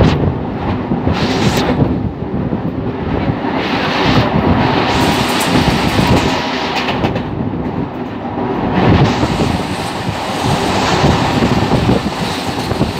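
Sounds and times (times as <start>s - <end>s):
train wheels rumbling on rails: 0.0s - 12.9s
wheels clacking over rail joints: 3.8s - 12.9s
air rushing past: 8.6s - 12.9s.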